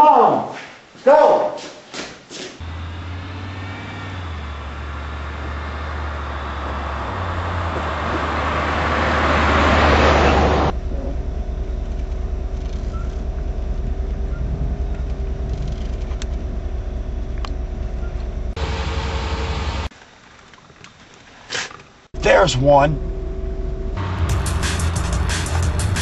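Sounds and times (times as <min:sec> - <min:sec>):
vehicle engine: 0:02.6 - 0:19.9, 0:22.2 - 0:26.0
road noise: 0:02.6 - 0:20.2, 0:22.0 - 0:26.0.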